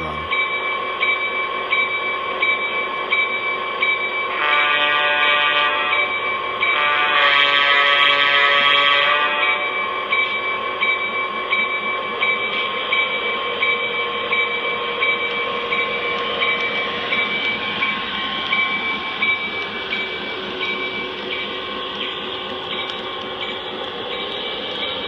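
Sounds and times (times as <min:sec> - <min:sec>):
model train wheels clicking: 0:15.0 - 0:25.0.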